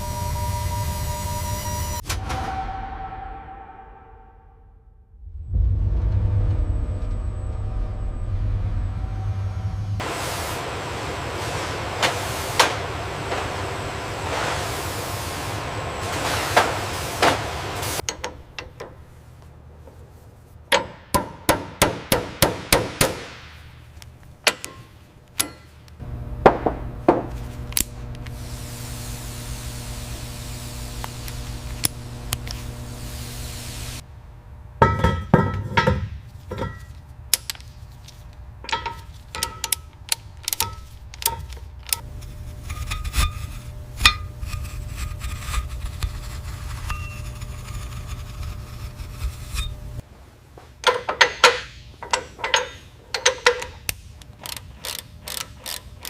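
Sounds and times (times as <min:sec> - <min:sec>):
low machine hum: 0:00.0 - 0:02.0, 0:05.2 - 0:22.3, 0:23.6 - 0:37.0, 0:38.4 - 0:50.1
tools clinking and clanking: 0:18.0 - 0:19.0, 0:24.4 - 0:26.0, 0:34.8 - 0:42.0, 0:50.8 - 0:56.0.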